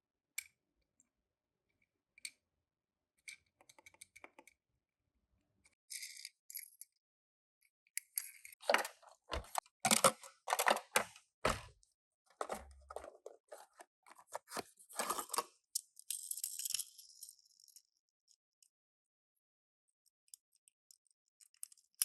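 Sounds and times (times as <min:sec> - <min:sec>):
clicks and knocks of toy car: 0:08.0 - 0:11.7
paper box rustling: 0:08.6 - 0:11.7, 0:12.4 - 0:15.4.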